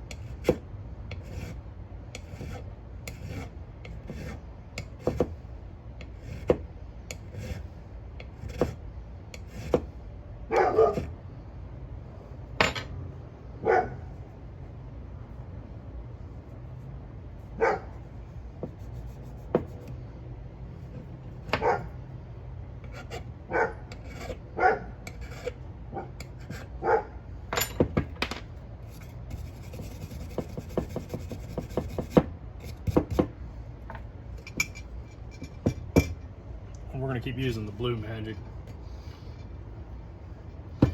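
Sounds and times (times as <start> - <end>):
dog barking: 10.5 - 11.1, 13.6 - 14.0, 17.6 - 17.9, 21.6 - 21.9, 23.5 - 23.8, 24.6 - 24.9, 26.8 - 27.2.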